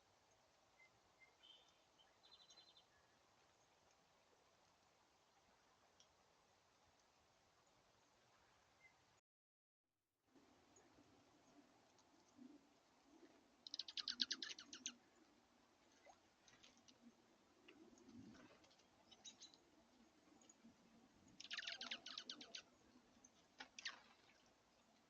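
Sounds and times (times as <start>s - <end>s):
faint bird chips: 13.6s - 15.0s, 21.3s - 22.7s
songbird trilling: 13.7s - 15.0s, 21.4s - 22.7s.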